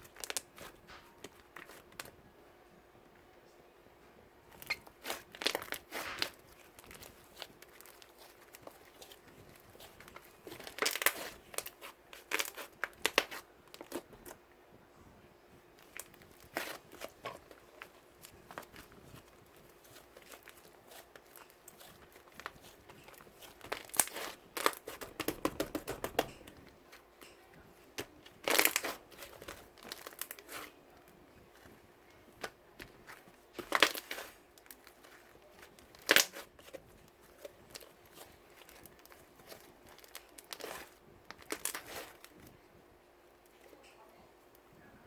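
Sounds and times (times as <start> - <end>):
crinkling and rustling handling: 0.0 - 2.3, 4.0 - 45.0
faint steady hum: 0.0 - 45.0.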